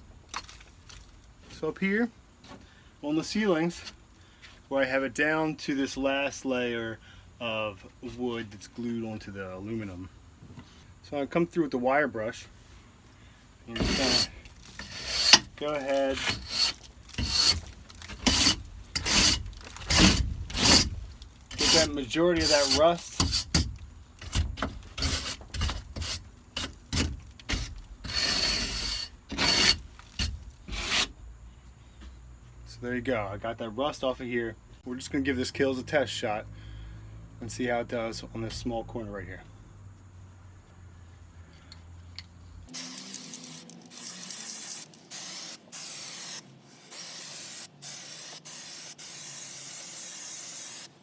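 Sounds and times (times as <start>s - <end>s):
wire brush scraping metal: 13.7s - 31.1s
aerosol can spraying: 42.7s - 51.0s.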